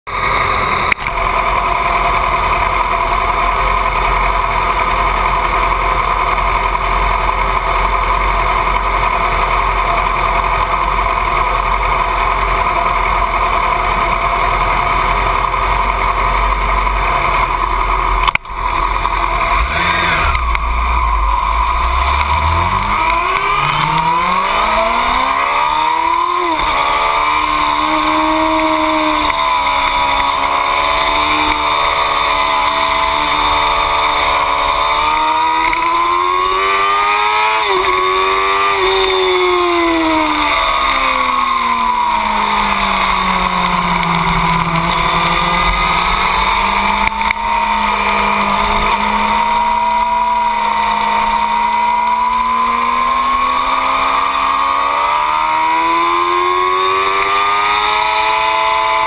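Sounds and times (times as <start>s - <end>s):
motorcycle engine idling: 0.1s - 36.6s, 37.8s - 53.6s
motorcycle engine accelerating: 0.1s - 59.0s.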